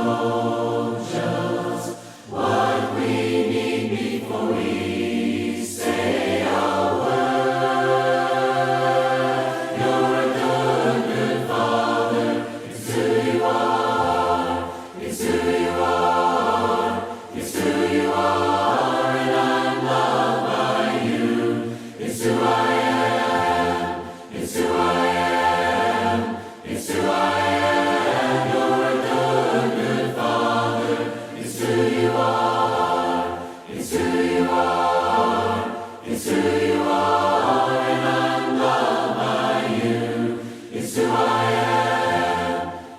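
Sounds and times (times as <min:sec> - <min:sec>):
choir singing a cappella: 0:00.0 - 0:42.9.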